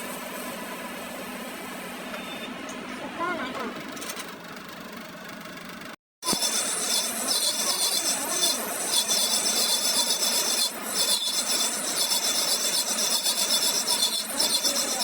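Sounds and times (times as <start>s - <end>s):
steel scraping on axle shaft: 6.2s - 15.0s.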